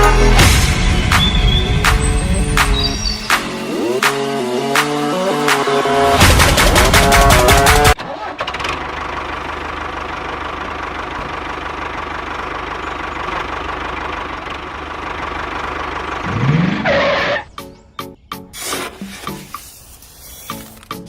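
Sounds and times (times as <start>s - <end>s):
small engine chugging: 8.3s - 17.4s.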